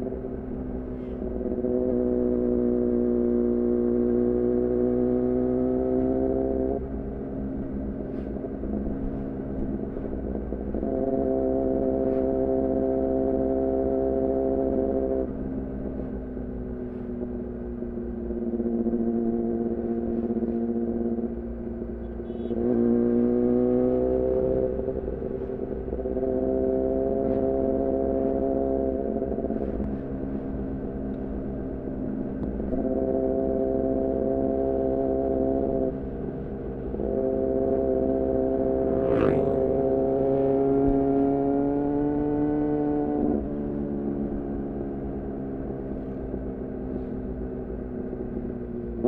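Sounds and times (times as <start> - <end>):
motorcycle engine revving: 37.0 - 43.8.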